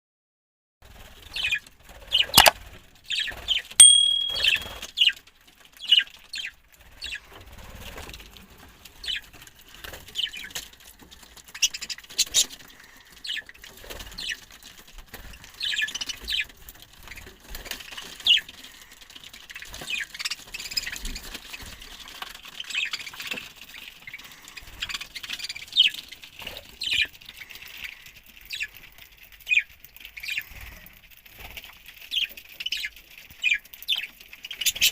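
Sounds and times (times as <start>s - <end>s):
whistled note: 3.8s - 4.7s.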